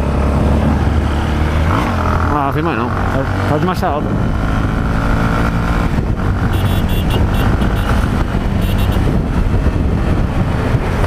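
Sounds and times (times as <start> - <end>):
wind rushing: 0.2 - 11.0
motorcycle engine running steadily: 2.0 - 11.0.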